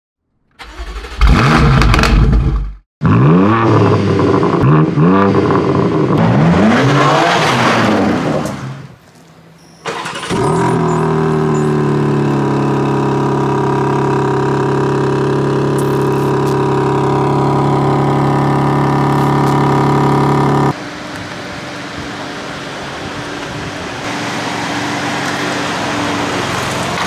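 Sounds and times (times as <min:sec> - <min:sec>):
car engine starting and idling: 0:00.6 - 0:02.8, 0:09.9 - 0:27.0.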